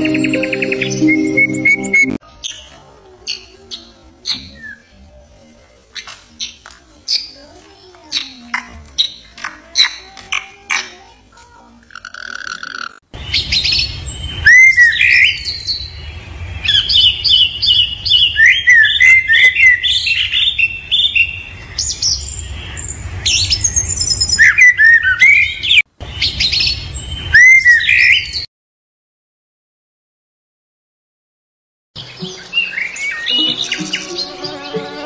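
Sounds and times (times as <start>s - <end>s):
birds chirping and trilling: 11.9s - 28.5s, 32.0s - 35.0s.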